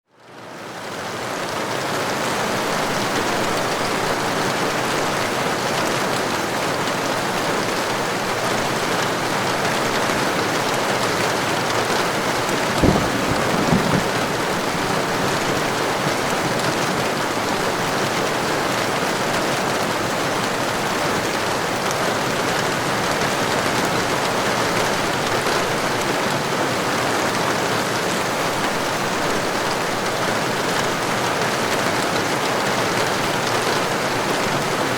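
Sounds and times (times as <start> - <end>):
heavy rain: 0.2 - 34.9
low thunder clap: 12.4 - 16.6.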